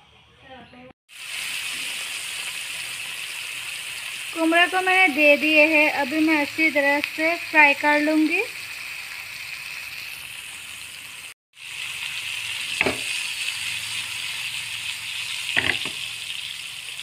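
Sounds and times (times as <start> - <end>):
vegetables sizzling in oil: 1.1 - 17.0.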